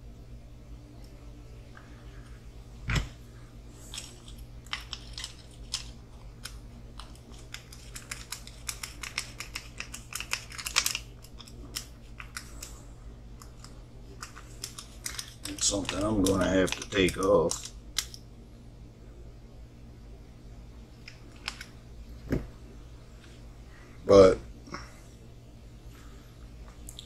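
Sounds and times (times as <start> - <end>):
steady low hum: 0.0 - 27.0
plastic parts clicking and rattling: 3.9 - 12.7, 13.4 - 18.2.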